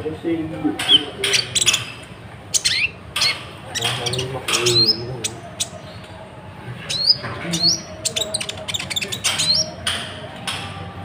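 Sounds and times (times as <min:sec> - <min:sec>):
bird chirps and squawks: 0:00.9 - 0:05.9, 0:06.9 - 0:09.8.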